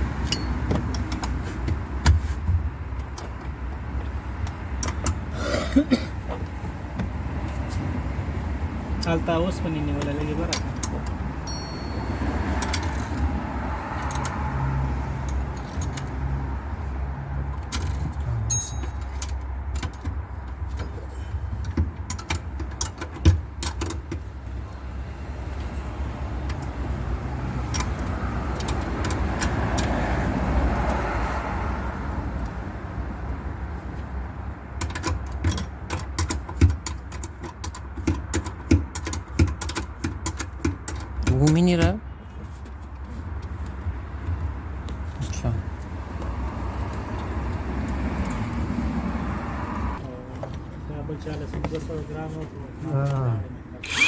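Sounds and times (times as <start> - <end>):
metal tools clicking and clinking: 0.2 - 1.3, 10.5 - 13.2, 17.6 - 20.1.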